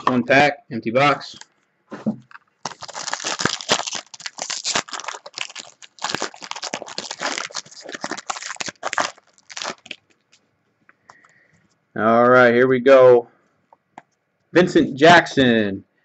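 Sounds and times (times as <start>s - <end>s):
wrapper crinkling and rustling: 2.3s - 10.4s.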